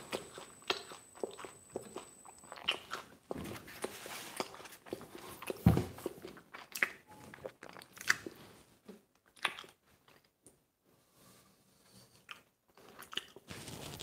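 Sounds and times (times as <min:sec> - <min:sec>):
chewing pizza: 0:00.0 - 0:10.6, 0:12.2 - 0:14.0
thump: 0:05.6 - 0:06.0.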